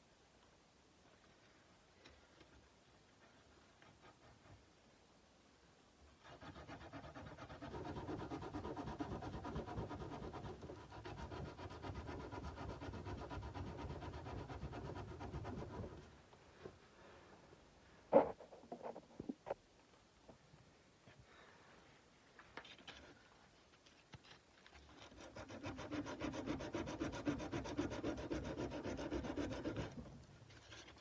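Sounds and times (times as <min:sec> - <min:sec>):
sandpaper rubbing metal blade: 0:25.0 - 0:30.0.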